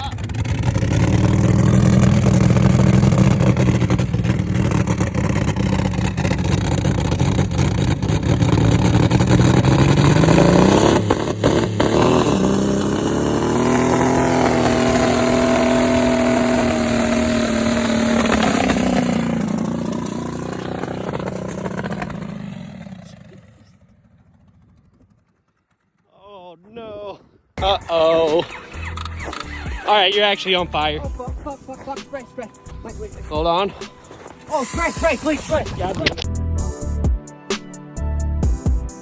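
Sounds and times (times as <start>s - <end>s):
truck engine revving: 0.0s - 25.7s, 27.6s - 36.4s
sharp engine cracks: 0.2s - 23.2s, 27.6s - 33.0s.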